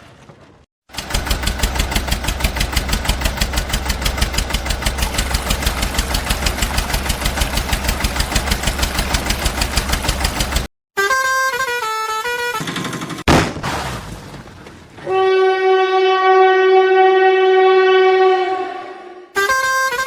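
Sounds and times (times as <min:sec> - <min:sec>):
heavy vehicle engine idling: 0:01.0 - 0:10.7.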